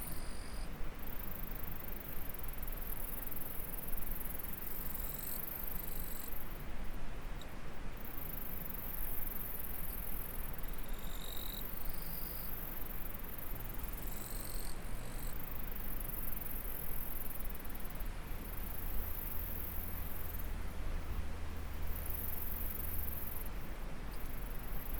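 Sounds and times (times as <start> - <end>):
insects chirring: 8.0 - 20.5.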